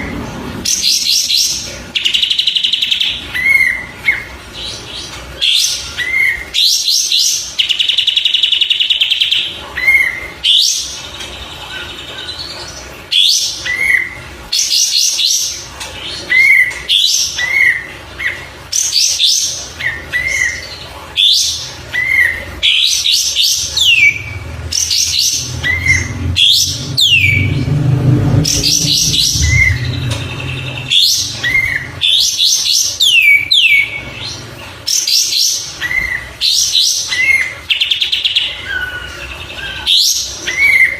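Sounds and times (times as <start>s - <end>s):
bird whistling and trilling: 21.2s - 27.5s, 28.5s - 30.2s, 30.8s - 34.0s, 34.9s - 40.9s
low hum: 24.1s - 32.2s.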